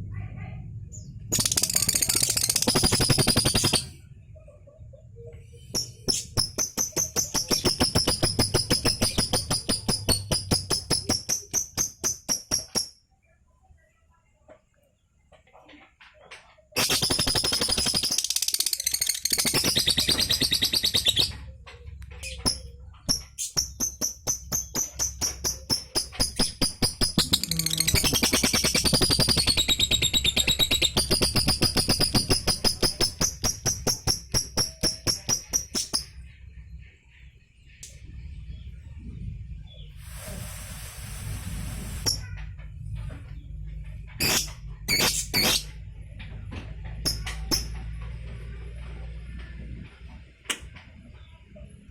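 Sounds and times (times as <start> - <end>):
lovebird rapid high chattering: 1.3 - 4.0, 5.6 - 12.9, 16.8 - 21.4, 22.1 - 36.2, 44.2 - 45.7.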